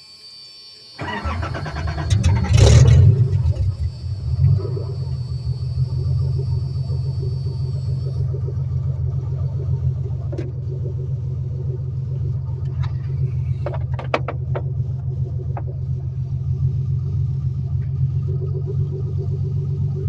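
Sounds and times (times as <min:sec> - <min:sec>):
faint high whine: 0:00.0 - 0:13.8
car engine idling: 0:01.0 - 0:20.0.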